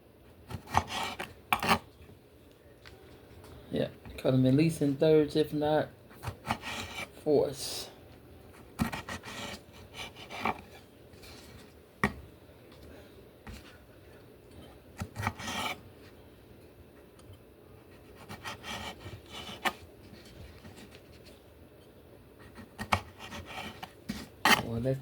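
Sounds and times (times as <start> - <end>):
knife scraping: 0.5 - 1.9, 6.2 - 7.2, 8.8 - 11.7, 15.0 - 15.8, 17.9 - 21.3, 22.4 - 24.8.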